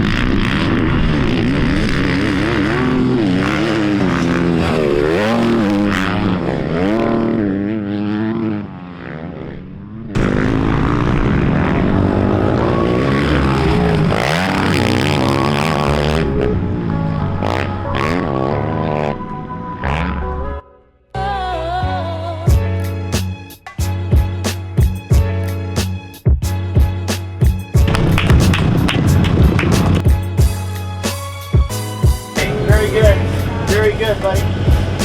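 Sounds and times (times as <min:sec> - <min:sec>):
dirt bike engines revving: 0:00.0 - 0:20.6, 0:27.8 - 0:30.1, 0:32.3 - 0:35.0.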